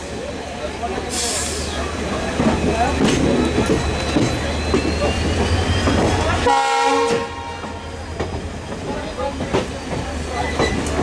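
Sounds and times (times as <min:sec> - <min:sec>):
train running noise inside carriage: 0:00.0 - 0:11.0
train horn blast: 0:06.4 - 0:07.9.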